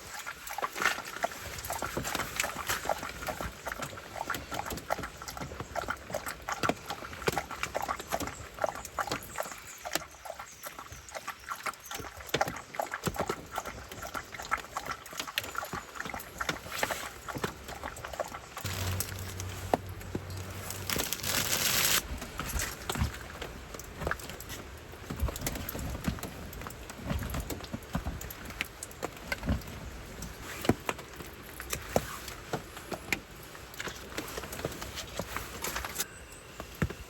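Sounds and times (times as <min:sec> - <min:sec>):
dog crunching food: 0:18.6 - 0:22.0.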